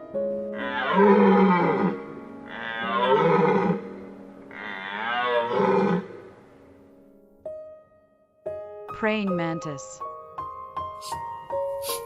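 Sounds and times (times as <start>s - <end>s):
soft background music: 0.0s - 12.0s
deer calling: 4.5s - 6.2s.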